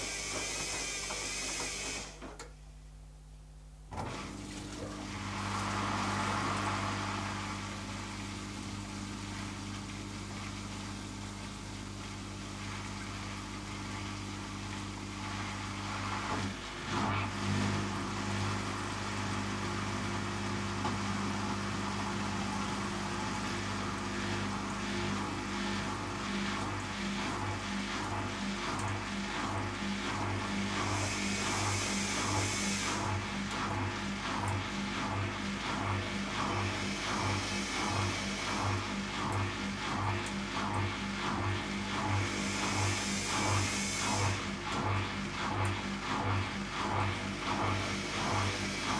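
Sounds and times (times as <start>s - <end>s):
hiss: 0.0s - 2.1s, 30.8s - 33.0s, 42.2s - 44.4s
washing machine running: 0.0s - 48.9s.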